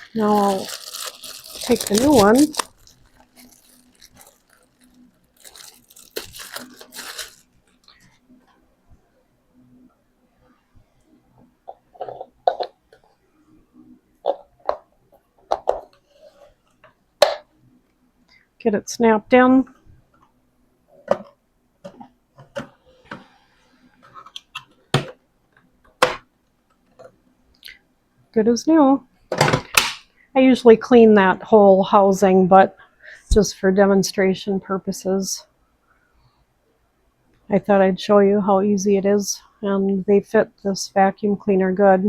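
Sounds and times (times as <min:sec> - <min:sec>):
packaging rustling and crinkling: 0:00.0 - 0:08.0.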